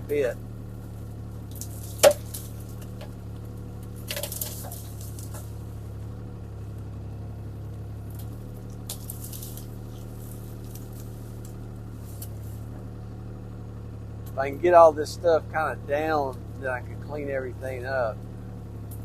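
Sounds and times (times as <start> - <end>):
excavator diesel engine running: 0.0 - 19.0
branches and wood breaking: 0.7 - 6.8, 7.7 - 13.0.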